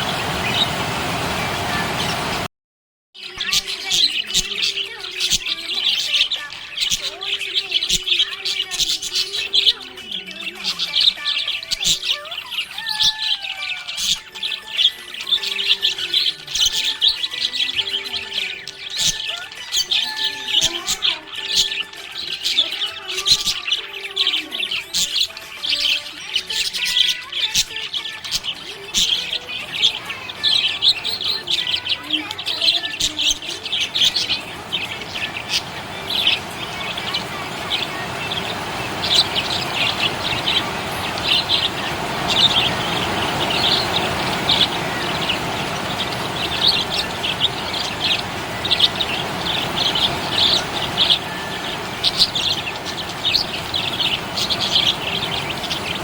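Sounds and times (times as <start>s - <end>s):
budgies chirping: 0.0s - 2.5s, 3.2s - 56.0s
steady rushing noise: 0.0s - 2.5s, 33.7s - 56.0s.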